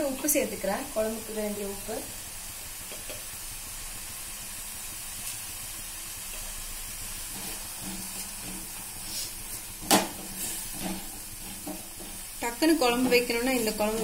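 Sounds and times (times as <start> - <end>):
masala sizzling in pan: 0.0 - 14.0
wooden spatula scraping: 7.1 - 14.0.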